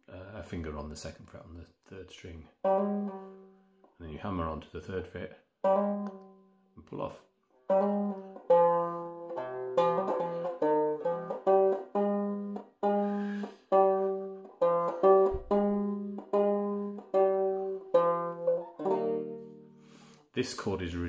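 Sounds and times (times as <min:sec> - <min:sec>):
banjo slow melody: 0:02.2 - 0:04.6, 0:05.4 - 0:21.0.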